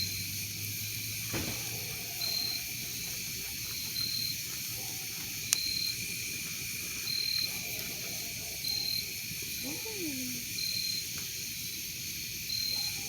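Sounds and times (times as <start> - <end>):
crickets trilling: 0.0 - 13.0
campfire pop: 1.3 - 7.9.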